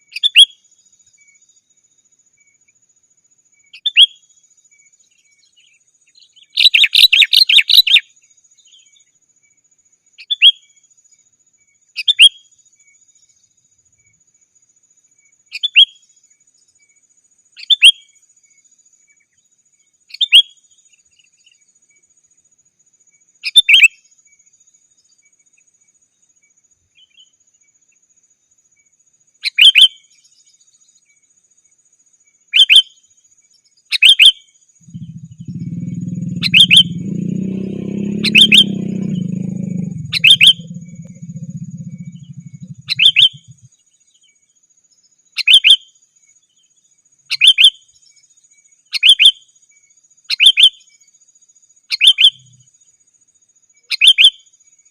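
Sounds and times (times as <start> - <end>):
bird chirping: 0.0 - 54.9
low rumble: 34.8 - 43.7.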